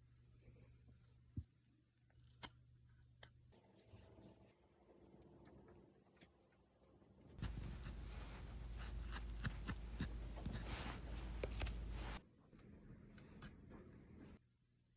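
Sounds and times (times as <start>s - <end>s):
chisel scraping wood: 7.4s - 11.8s.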